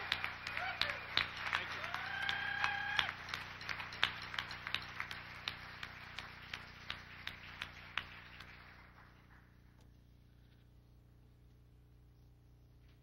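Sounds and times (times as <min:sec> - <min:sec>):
single claps: 0:00.0 - 0:09.5
audience applause: 0:00.0 - 0:09.6.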